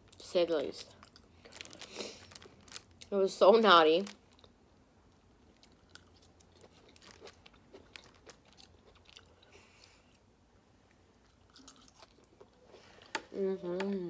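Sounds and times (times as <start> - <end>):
person chewing: 5.5 - 10.3, 11.2 - 12.8.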